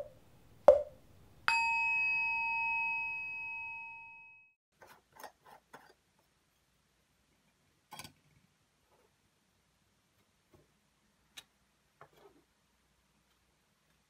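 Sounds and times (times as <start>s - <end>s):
metallic ding: 1.5s - 4.5s.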